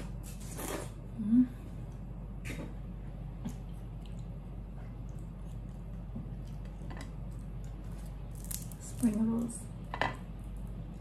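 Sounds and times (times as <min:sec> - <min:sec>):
steady low hum: 0:00.0 - 0:11.0
wet chewing: 0:03.5 - 0:08.9.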